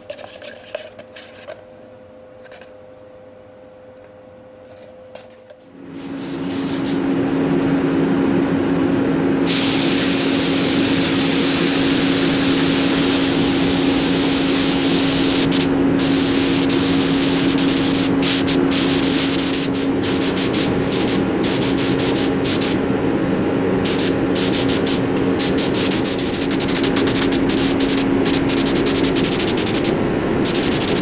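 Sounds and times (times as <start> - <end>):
compressed air gun hissing: 6.0 - 7.1, 9.5 - 22.8, 23.8 - 31.0.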